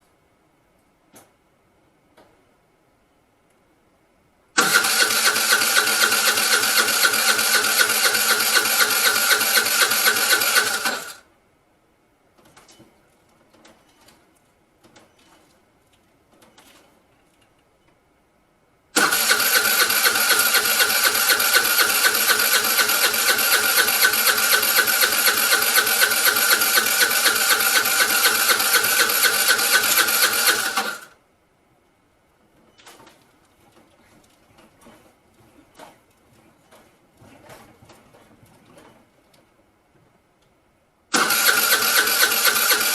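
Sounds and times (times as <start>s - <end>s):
scooter starter cranking: 4.6s - 11.2s, 19.0s - 31.1s, 41.1s - 42.9s.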